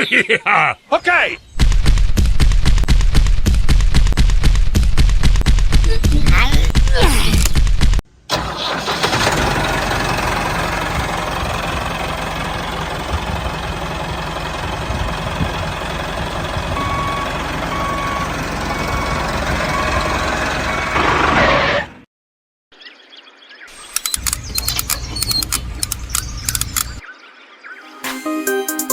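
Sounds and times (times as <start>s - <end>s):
vehicle engine running: 8.3s - 21.4s, 24.1s - 27.0s
reversing beeper beeps: 16.7s - 20.0s.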